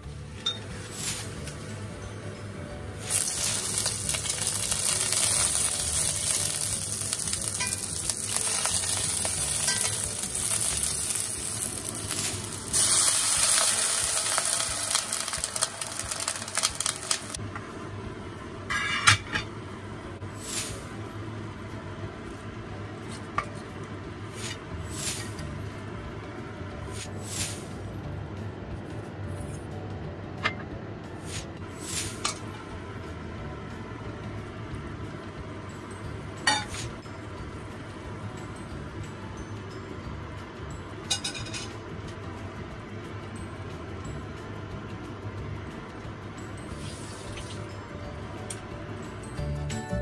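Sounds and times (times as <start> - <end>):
food sizzling in a pan: 3.0 - 17.4.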